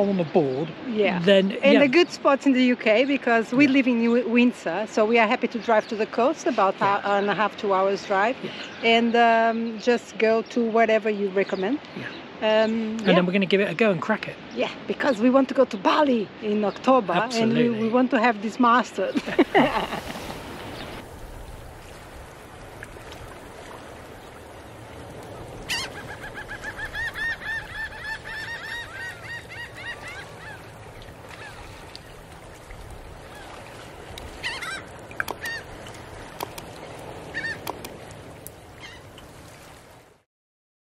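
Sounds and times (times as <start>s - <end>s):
steady background hiss: 17.0s - 22.4s
bird calls: 19.0s - 21.0s, 24.3s - 32.3s, 33.2s - 38.0s, 38.8s - 39.2s.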